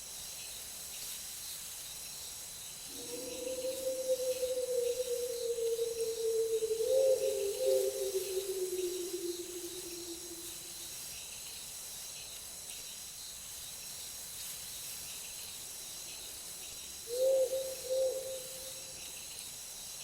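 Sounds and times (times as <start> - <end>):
crickets and insects chirping: 0.0 - 20.0
wolf howling: 2.9 - 10.6.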